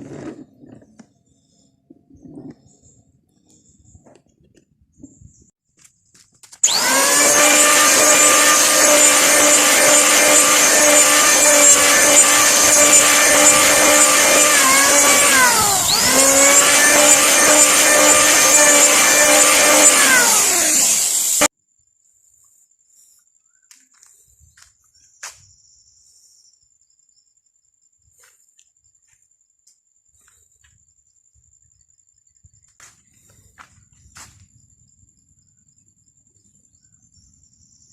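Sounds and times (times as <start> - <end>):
power tool motor cutting wood: 6.4 - 21.5.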